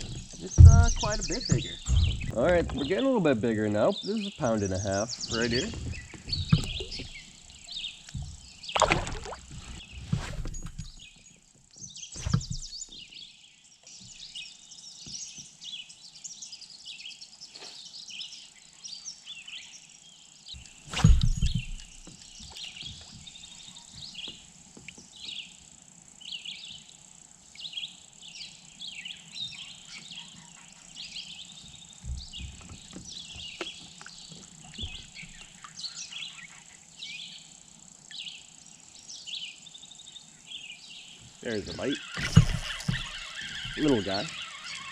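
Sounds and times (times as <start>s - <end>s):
thumps: 0.0s - 3.0s, 5.3s - 11.2s, 12.2s - 13.0s, 20.8s - 23.3s, 42.2s - 44.4s
birds chirping and singing: 0.0s - 24.4s, 27.6s - 37.5s, 38.1s - 44.9s.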